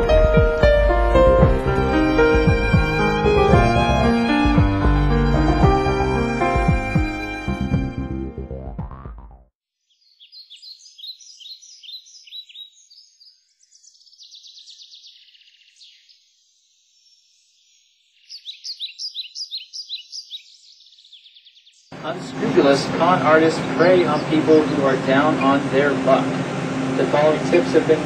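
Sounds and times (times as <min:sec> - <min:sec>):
music: 0:00.0 - 0:09.5
bird chirping: 0:09.8 - 0:25.8.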